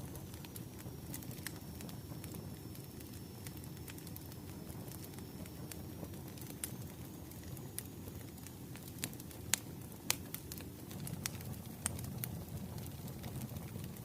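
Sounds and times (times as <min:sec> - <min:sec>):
low rumble of flames: 0:00.0 - 0:14.0.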